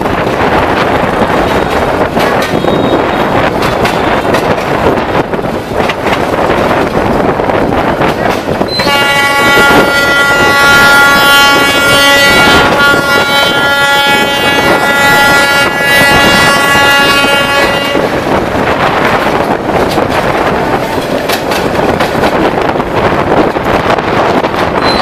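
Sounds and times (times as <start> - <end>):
moving train rumbling and rattling: 0.0 - 25.0
train horn blast: 8.7 - 18.3.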